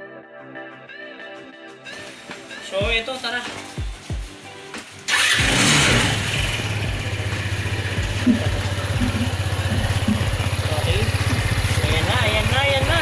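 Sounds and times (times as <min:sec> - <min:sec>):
scooter engine starting and idling: 0:05.1 - 0:13.0.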